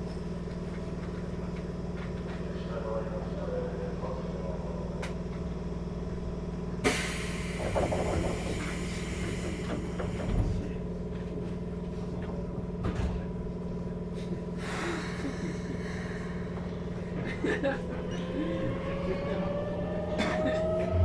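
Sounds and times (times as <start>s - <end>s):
train equipment hum: 5.0s - 21.0s.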